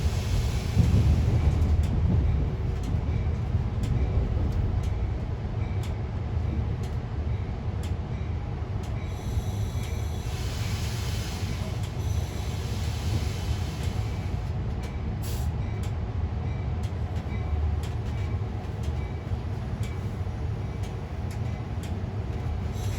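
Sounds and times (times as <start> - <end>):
passenger train rumbling: 0.0 - 22.9
faint light ticks: 6.8 - 7.0, 7.8 - 8.0, 11.8 - 12.0, 13.7 - 15.0, 16.8 - 20.2, 20.8 - 22.7.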